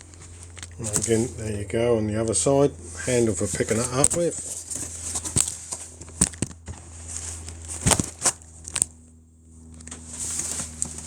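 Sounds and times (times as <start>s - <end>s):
cardboard rustling: 0.0s - 1.6s, 2.8s - 8.9s, 9.9s - 11.0s
faint low hum: 0.0s - 11.0s.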